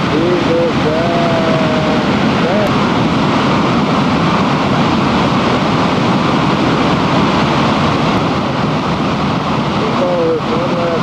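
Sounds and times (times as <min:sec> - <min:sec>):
water rushing over dam: 0:00.0 - 0:11.0.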